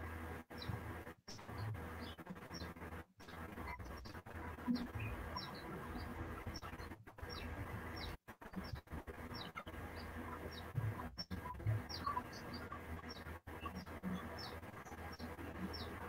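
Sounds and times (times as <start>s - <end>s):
low hum: 0.0s - 16.0s
birds chirping: 0.4s - 16.0s.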